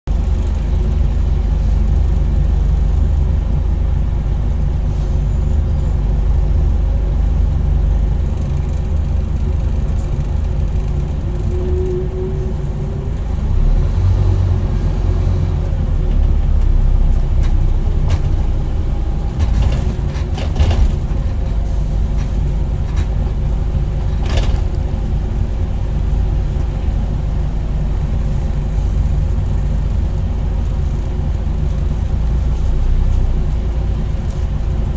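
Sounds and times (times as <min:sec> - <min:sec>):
diesel bus engine droning: 0:00.1 - 0:34.9
sharp clicks and rattles: 0:07.1 - 0:11.9, 0:16.1 - 0:26.8.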